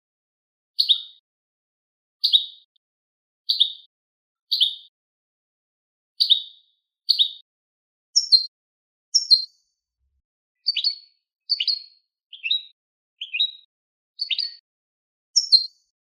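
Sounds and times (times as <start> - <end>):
bird chirp calls: 0.8 - 1.2, 2.2 - 2.7, 3.5 - 3.9, 4.5 - 5.0, 6.2 - 7.5, 8.2 - 8.5, 9.2 - 9.6, 10.6 - 14.6, 15.4 - 15.8.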